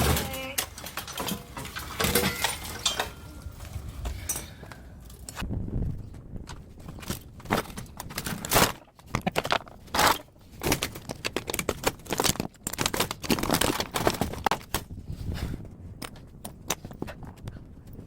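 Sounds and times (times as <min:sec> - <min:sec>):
metal knocks and clanks: 0:00.0 - 0:05.4
metal scraping: 0:00.0 - 0:05.4.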